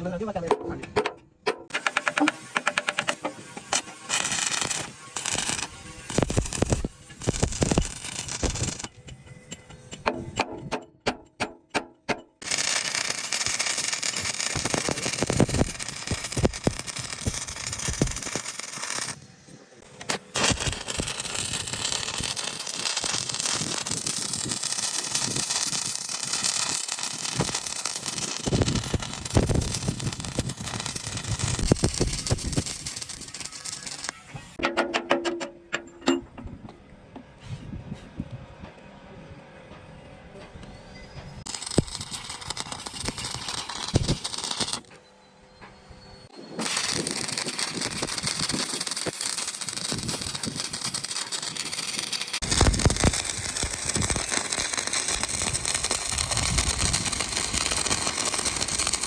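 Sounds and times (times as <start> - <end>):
arc welding crackle: 1.8 - 9.0, 12.4 - 19.2, 20.0 - 34.6, 41.5 - 44.9, 46.6 - 59.0.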